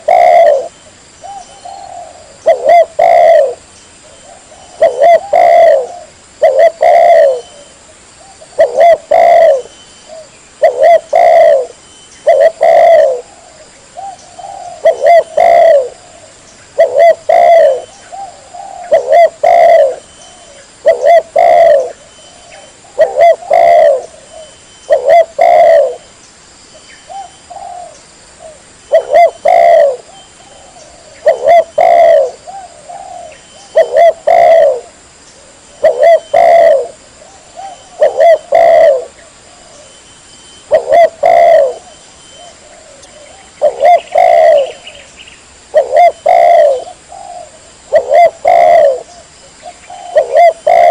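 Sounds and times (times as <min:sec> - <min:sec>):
dove cooing: 0:00.0 - 0:26.1, 0:27.1 - 0:40.0, 0:40.6 - 0:45.1, 0:45.7 - 0:50.9.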